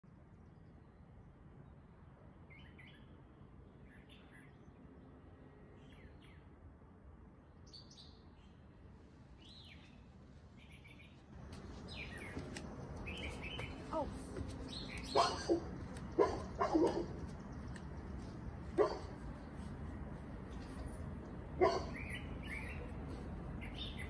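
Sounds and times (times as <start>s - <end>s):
small birds chirping: 9.4s - 24.0s.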